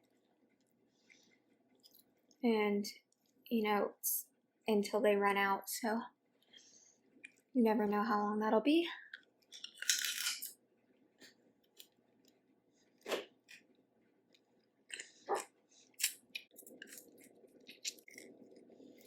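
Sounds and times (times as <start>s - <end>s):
chewing with crunches: 11.6s - 19.0s.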